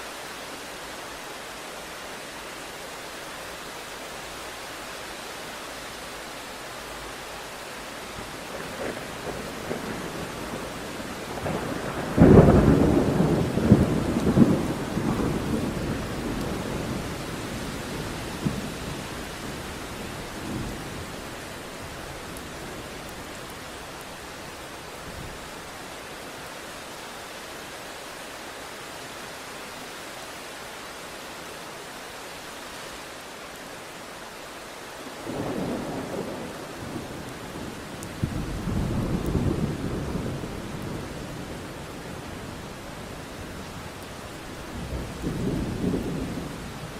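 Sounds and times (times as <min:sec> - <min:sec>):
rain hissing: 0:00.0 - 0:46.9
thunder cracking and rumbling: 0:08.2 - 0:21.2.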